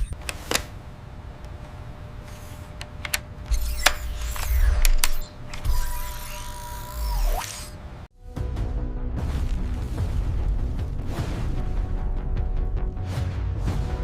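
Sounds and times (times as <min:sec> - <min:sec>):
mechanical clicks: 0:02.8 - 0:07.7.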